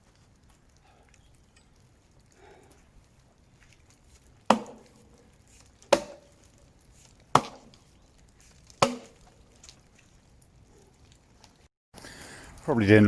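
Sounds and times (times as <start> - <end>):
axe chopping wood: 4.5 - 5.1, 5.8 - 6.6, 7.3 - 7.8, 8.6 - 9.3.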